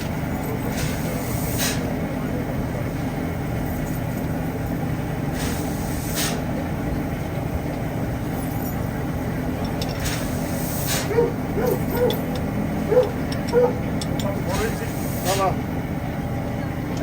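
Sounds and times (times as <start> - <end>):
steam train rumble: 0.0 - 17.0
steam hisses: 0.7 - 1.9, 5.4 - 6.5, 10.0 - 11.1, 14.5 - 15.6.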